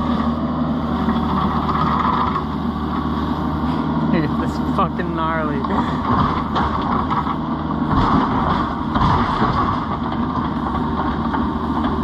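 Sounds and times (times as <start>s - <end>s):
excavator diesel engine under load: 0.0s - 12.0s.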